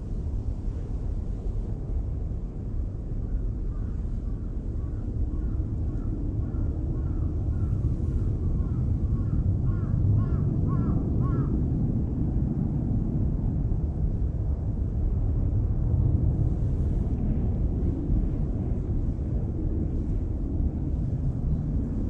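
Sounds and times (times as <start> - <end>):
low rumble: 0.0 - 22.0
crow cawing: 9.2 - 11.5.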